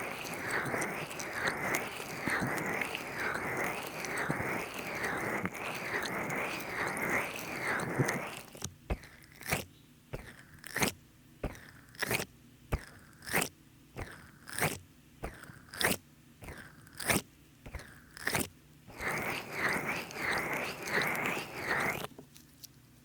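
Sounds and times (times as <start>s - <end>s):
oily hands squelching: 0.0s - 9.6s.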